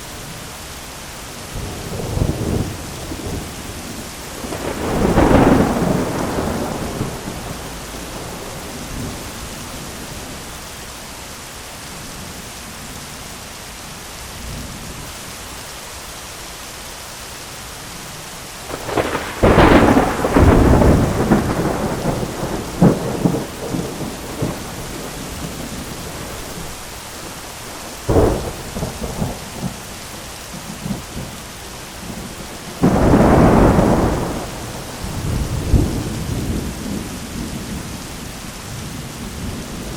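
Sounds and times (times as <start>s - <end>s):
heavy rain on an umbrella: 0.0s - 39.9s
thunder: 4.4s - 9.4s, 18.7s - 26.7s, 28.0s - 29.9s, 32.1s - 38.0s.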